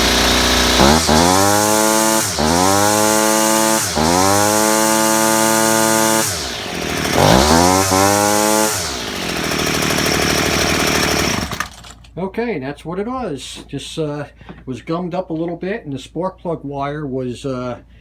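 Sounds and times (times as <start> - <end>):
string trimmer engine revving: 0.0 - 12.0.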